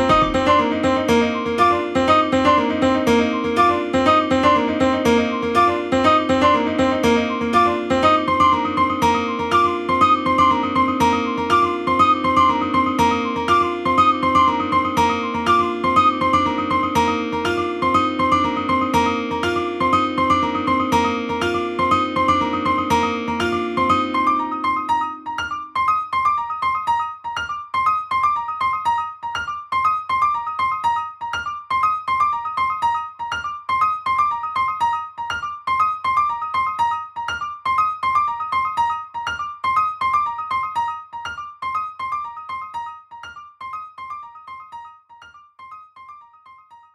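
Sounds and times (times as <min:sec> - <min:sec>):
low piano chord: 0:00.0 - 0:25.9
piano high repeating figure: 0:00.0 - 0:26.5.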